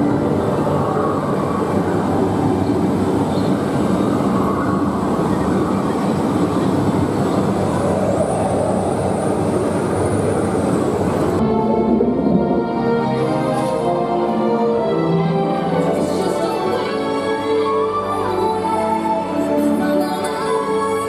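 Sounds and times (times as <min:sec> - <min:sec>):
ride vehicle rumbling: 0:00.0 - 0:15.1.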